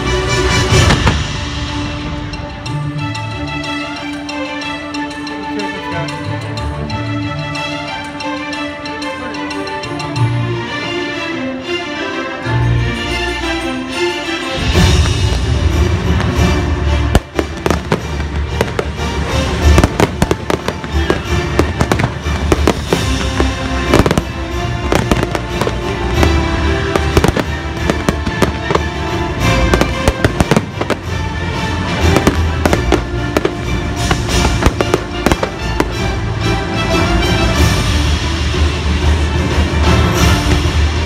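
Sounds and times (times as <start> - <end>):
fireworks bangs and crackles: 0.0 - 3.0, 14.6 - 36.4
loud music playing: 0.0 - 41.0.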